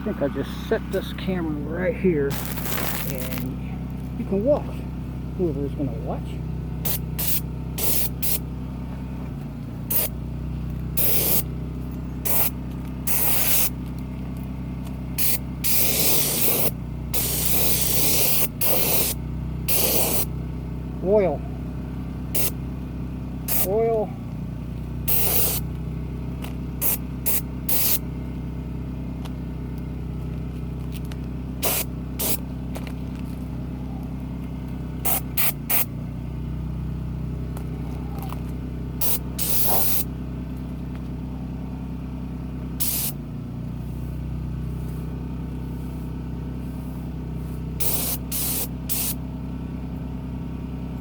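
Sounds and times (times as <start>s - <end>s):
low engine hum: 0.0s - 51.0s
oil spray hissing spurts: 2.3s - 3.5s, 6.8s - 8.5s, 9.8s - 10.2s, 10.9s - 11.6s, 12.2s - 14.0s, 15.1s - 20.3s, 22.3s - 22.6s, 23.4s - 23.8s, 25.1s - 25.7s, 26.8s - 28.0s, 31.6s - 32.9s, 35.0s - 35.9s, 39.0s - 40.1s, 42.8s - 43.2s, 43.8s - 49.2s.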